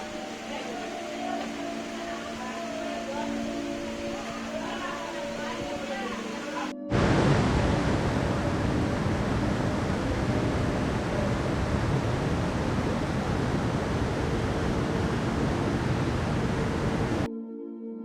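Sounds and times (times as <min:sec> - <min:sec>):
steady rushing noise: 0:00.0 - 0:17.3
low rumble: 0:06.9 - 0:17.3.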